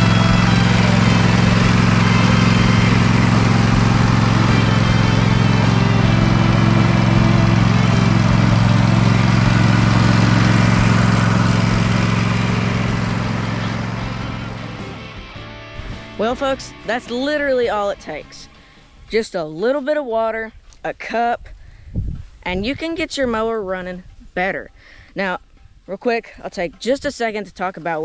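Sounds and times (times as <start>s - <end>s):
riding mower engine running: 0.0s - 19.0s.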